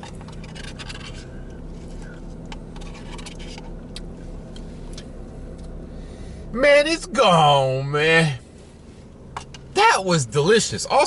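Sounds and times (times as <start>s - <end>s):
spoon scraping ice cream cup: 0.0s - 3.8s
steady low hum: 0.0s - 11.0s.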